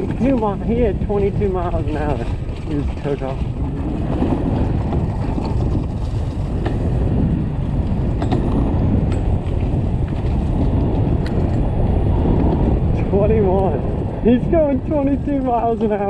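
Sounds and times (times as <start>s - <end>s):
wind rushing over microphone: 0.0s - 16.0s
tyre noise on dirt: 2.1s - 12.8s.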